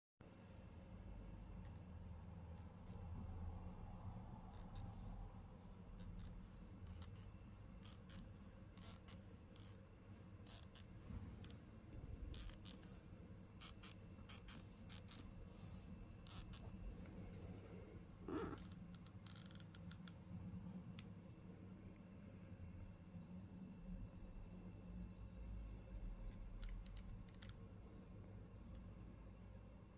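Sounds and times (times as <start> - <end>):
laptop hinge creaking and clicking: 18.3 - 20.2, 26.6 - 27.6.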